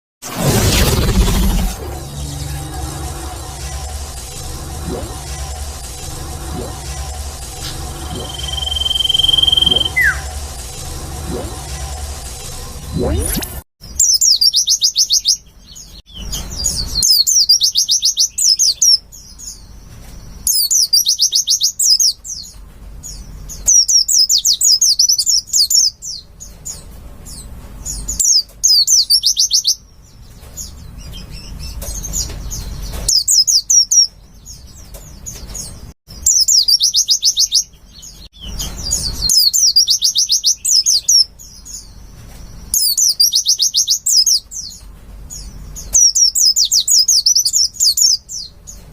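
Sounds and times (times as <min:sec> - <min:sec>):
faint low rumble: 0:00.3 - 0:13.6
bird trilled chatter: 0:08.0 - 0:10.5.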